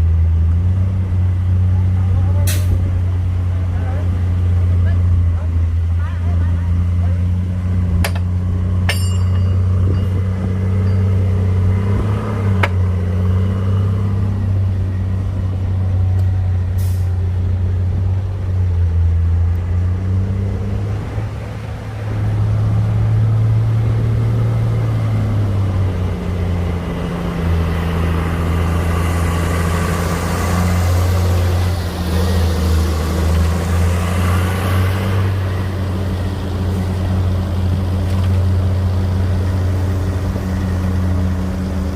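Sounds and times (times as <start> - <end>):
heavy diesel engine droning: 0.0 - 41.9
sharp metal clanks: 8.0 - 11.2.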